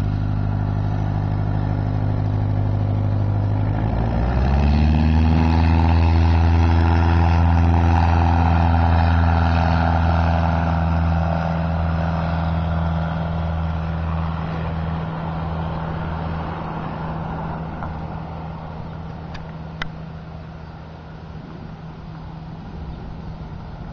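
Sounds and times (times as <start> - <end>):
small plane engine drone: 0.0 - 23.9.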